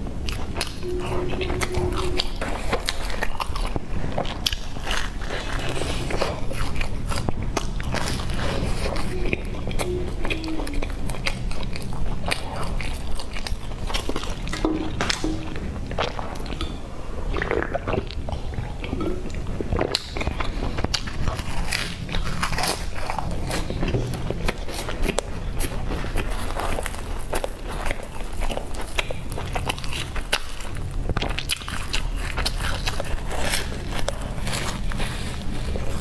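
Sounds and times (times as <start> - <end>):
chewing and biting bread: 0.0 - 16.6, 17.2 - 36.0
low steady hum: 0.0 - 36.0.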